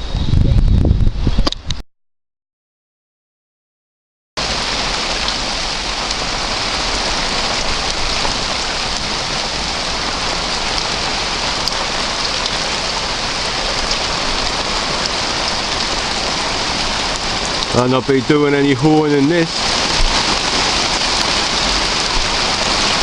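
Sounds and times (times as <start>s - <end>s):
rain falling: 4.4s - 23.0s
raindrop ticks: 6.0s - 6.3s, 10.6s - 12.6s, 13.7s - 16.2s, 16.8s - 17.8s.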